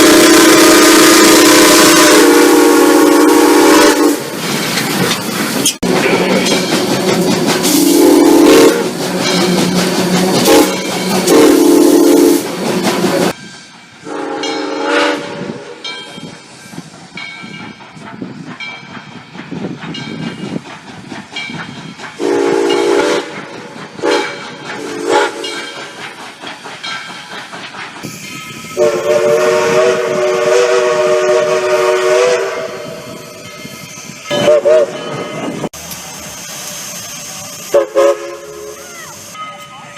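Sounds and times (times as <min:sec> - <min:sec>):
steam locomotive whistle blasts: 0:00.0 - 0:04.3, 0:07.7 - 0:09.0, 0:10.4 - 0:12.5, 0:14.0 - 0:15.8, 0:22.2 - 0:23.4, 0:24.0 - 0:25.6, 0:28.7 - 0:33.2, 0:34.3 - 0:35.2, 0:37.7 - 0:39.6
locomotive hiss and running noise: 0:15.4 - 0:34.8, 0:35.6 - 0:39.9.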